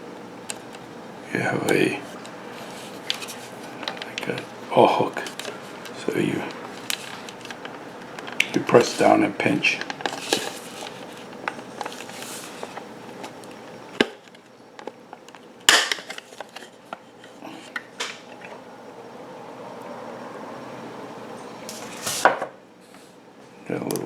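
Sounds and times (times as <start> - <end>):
plastic clicks and scraping: 1.6 - 4.5, 5.1 - 9.1, 9.7 - 18.2.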